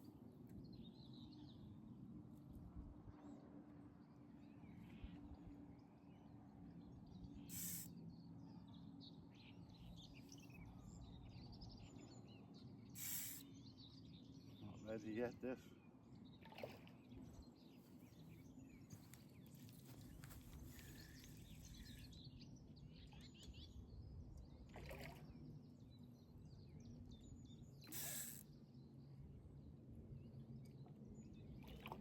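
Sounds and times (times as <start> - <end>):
short bird calls: 7.5 - 7.9, 13.0 - 13.5, 27.9 - 28.4.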